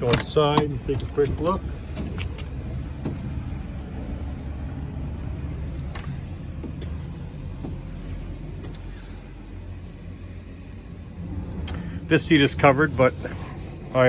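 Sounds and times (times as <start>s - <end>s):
light knocks and clicks: 0.0s - 3.6s, 5.8s - 8.9s
low rumble: 0.0s - 14.0s.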